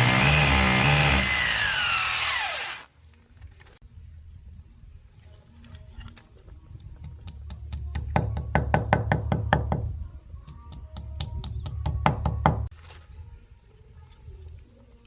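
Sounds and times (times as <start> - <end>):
power tool motor hum: 0.0 - 2.9.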